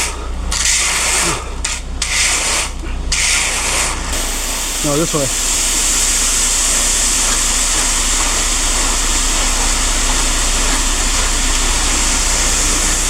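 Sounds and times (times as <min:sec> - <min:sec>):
diesel engine running: 0:04.1 - 0:13.0
steady hiss: 0:04.2 - 0:13.0.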